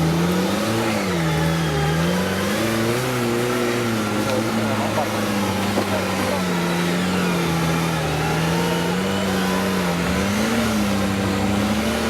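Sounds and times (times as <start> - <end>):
off-road vehicle engine running: 0.0 - 12.0.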